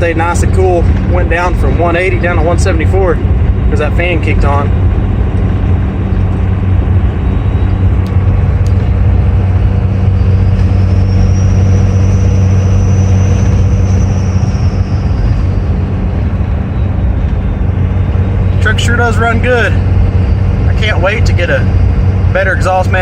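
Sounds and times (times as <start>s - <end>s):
diesel engine droning: 0.0s - 23.0s
turbo whistle: 9.9s - 15.8s.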